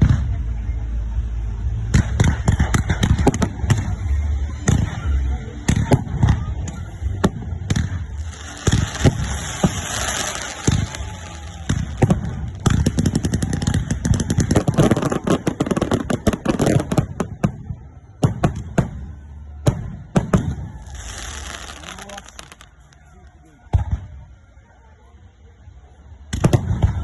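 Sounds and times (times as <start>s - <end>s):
firecrackers banging: 5.8s - 19.0s, 19.6s - 23.0s.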